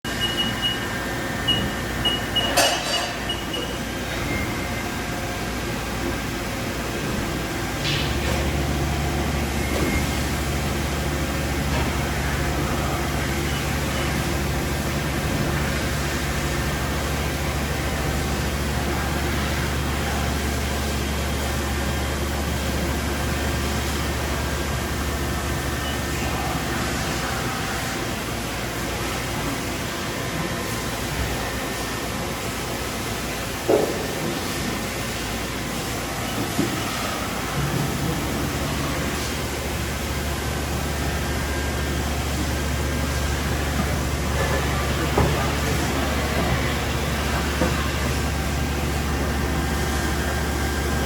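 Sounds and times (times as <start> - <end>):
short high beeps: 0.1 - 0.9, 1.5 - 4.6.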